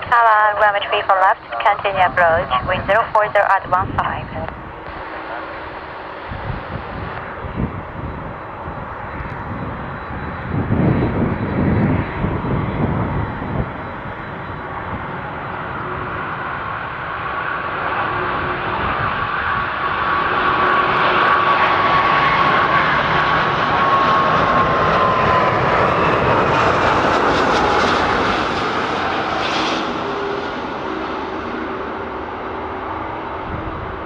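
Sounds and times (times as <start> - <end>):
jet airliner flying past: 0.0 - 34.0
engine whine dropping in pitch: 3.6 - 34.0.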